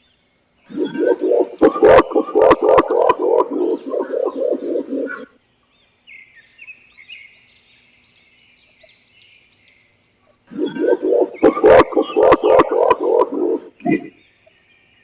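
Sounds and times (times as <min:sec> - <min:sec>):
pigeon deep cooing: 0:00.7 - 0:05.3, 0:10.5 - 0:14.1.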